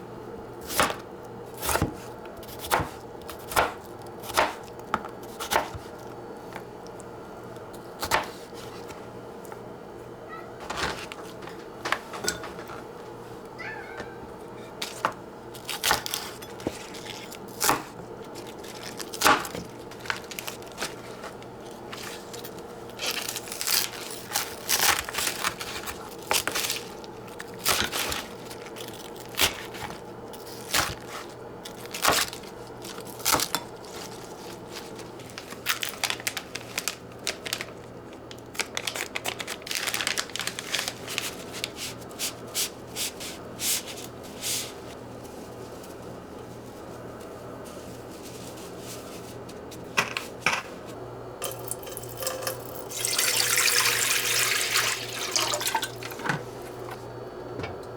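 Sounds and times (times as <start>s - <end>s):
crinkling and tearing: 15.6s - 42.0s.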